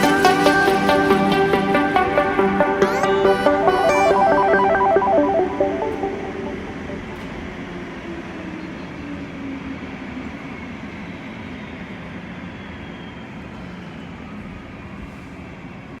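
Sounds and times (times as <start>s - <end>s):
jet engines idling: 0.0s - 11.8s.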